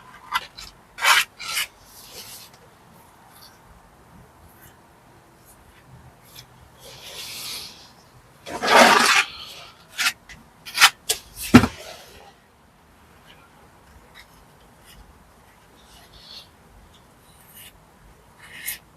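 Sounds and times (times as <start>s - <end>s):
trowel scraping mortar on brick: 8.5s - 12.2s.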